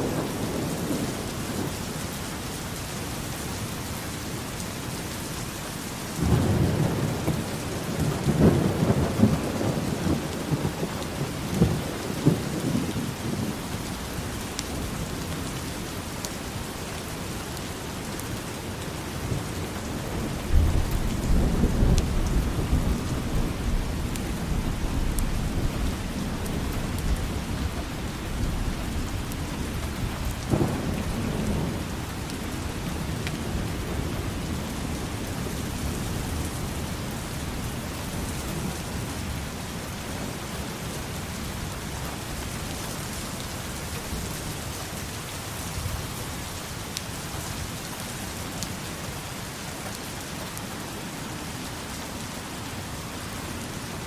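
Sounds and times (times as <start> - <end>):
steady rain: 0.0 - 54.0
rolling thunder: 6.2 - 13.7, 19.2 - 36.8.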